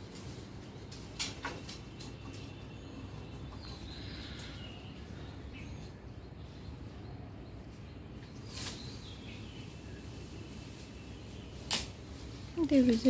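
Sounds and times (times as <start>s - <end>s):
low background noise: 0.0s - 13.0s
faint bird chirps: 2.2s - 11.6s.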